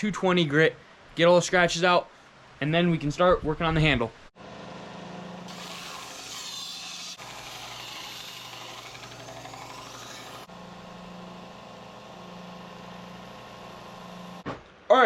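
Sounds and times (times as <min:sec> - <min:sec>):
belt sander motor hum: 0:04.4 - 0:14.4
steel grinding on sander belt: 0:05.4 - 0:10.5.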